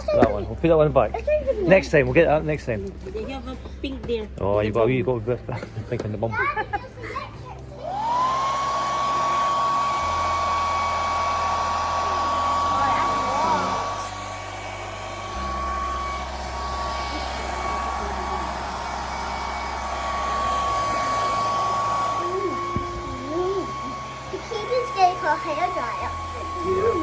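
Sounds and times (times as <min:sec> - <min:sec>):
hair dryer running: 0:07.7 - 0:27.0.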